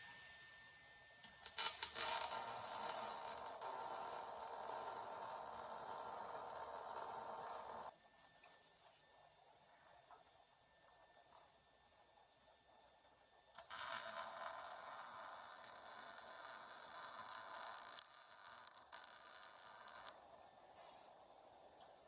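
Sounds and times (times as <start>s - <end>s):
welder arc crackling: 1.3s - 5.6s, 17.0s - 20.2s.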